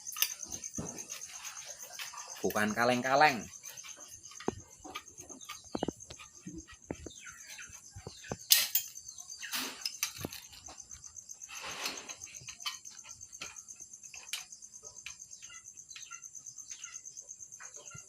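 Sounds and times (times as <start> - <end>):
crickets trilling: 0.0 - 18.0
clicks and taps: 4.4 - 7.1.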